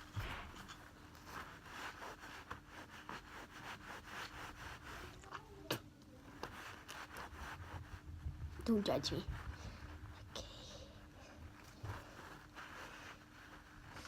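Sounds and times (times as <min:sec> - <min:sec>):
hands rubbing and scraping: 0:00.0 - 0:10.1, 0:11.3 - 0:14.0.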